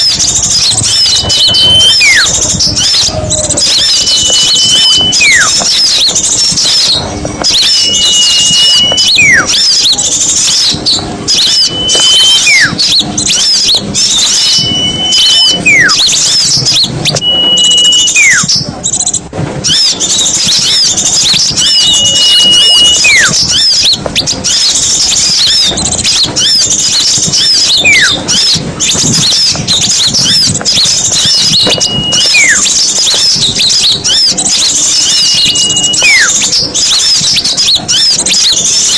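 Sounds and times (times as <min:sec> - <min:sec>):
small birds twittering: 0:00.0 - 0:38.9
falling pitch whistle: 0:07.4 - 0:09.6, 0:11.3 - 0:18.5, 0:19.7 - 0:23.6.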